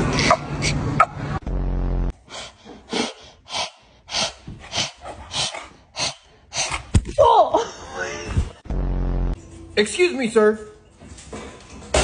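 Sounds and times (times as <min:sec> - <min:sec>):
loud low buzz: 0:01.3 - 0:02.2, 0:08.6 - 0:09.4.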